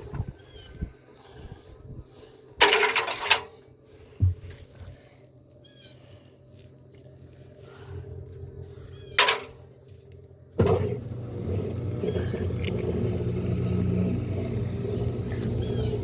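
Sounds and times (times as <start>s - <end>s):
washing machine motor humming: 10.6s - 16.0s.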